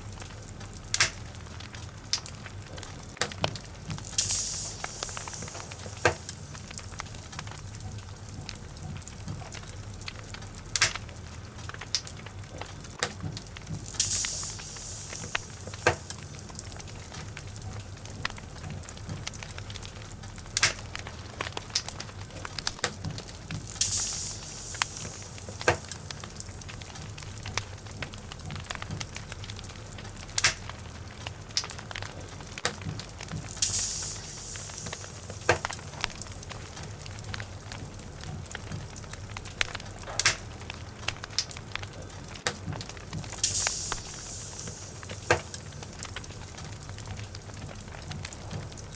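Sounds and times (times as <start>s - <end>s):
log fire crackling: 0.0s - 48.9s
high hissing: 4.0s - 7.8s, 13.8s - 17.6s, 23.4s - 27.5s, 33.2s - 36.8s, 43.2s - 46.6s.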